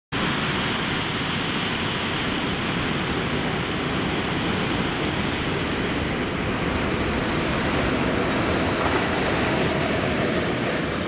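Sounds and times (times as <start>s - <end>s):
freight train approaching: 0.2s - 11.0s
locomotive equipment running: 6.3s - 11.0s.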